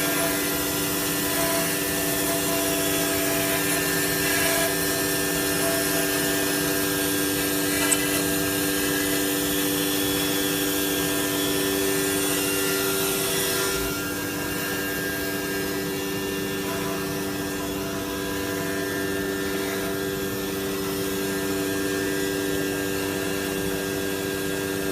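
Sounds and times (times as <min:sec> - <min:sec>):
router bit cutting wood hiss: 0:00.0 - 0:15.5
wood router spindle whine: 0:00.0 - 0:24.9.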